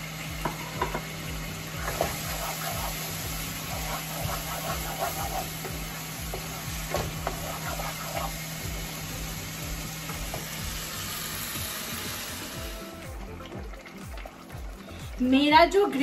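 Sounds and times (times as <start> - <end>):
gravy sizzling in a pot: 0.0 - 15.5.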